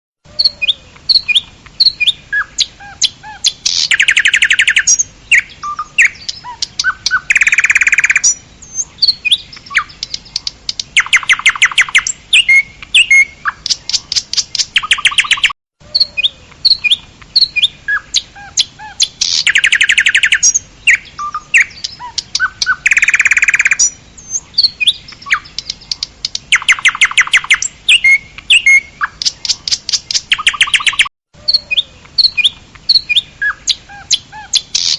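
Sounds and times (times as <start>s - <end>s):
birds singing: 0.3s - 34.9s
loud fast bird trills: 0.4s - 8.4s, 11.0s - 13.7s, 17.4s - 25.7s, 26.5s - 34.9s.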